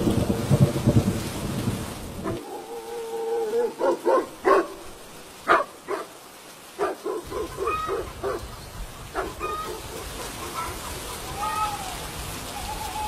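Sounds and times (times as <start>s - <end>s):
falling rain: 0.0s - 13.0s
rushing floodwater: 0.0s - 13.0s
dog barking: 3.6s - 6.2s, 6.8s - 8.5s, 9.1s - 11.1s.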